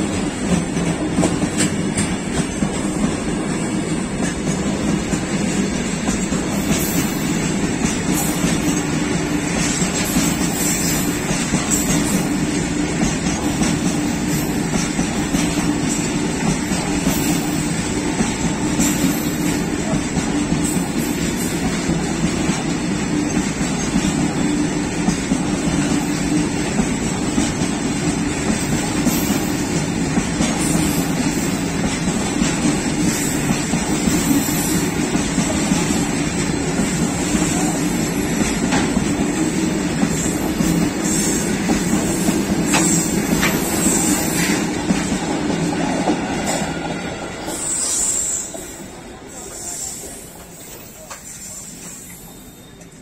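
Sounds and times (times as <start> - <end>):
freight train rumbling past: 0.0 - 53.0
high squeal: 49.6 - 53.0.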